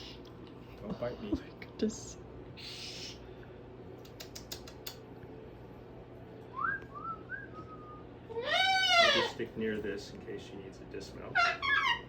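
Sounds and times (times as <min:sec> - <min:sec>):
light sharp clicks: 0:04.0 - 0:05.0.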